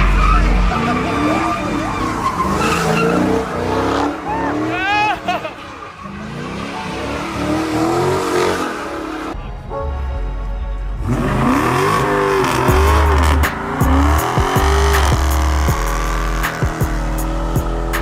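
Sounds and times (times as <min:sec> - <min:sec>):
car engine revving: 0:00.0 - 0:09.4, 0:10.8 - 0:18.0
music with heavy bass beat: 0:10.8 - 0:18.0.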